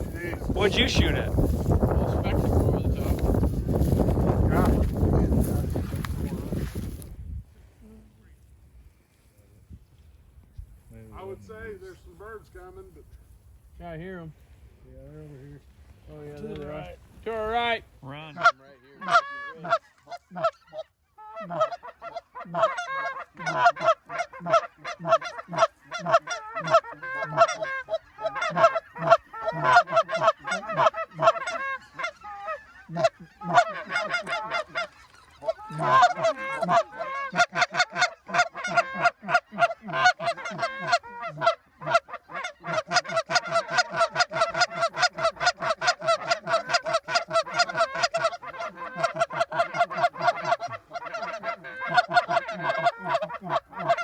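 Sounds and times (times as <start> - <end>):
geese calling: 0.0 - 7.0, 18.2 - 54.0.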